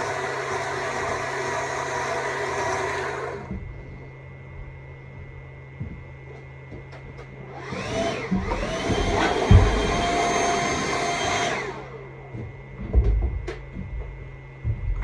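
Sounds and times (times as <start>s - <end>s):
electric chainsaw motor whining: 0.0s - 3.6s, 7.5s - 12.4s
low thud: 9.1s - 10.2s.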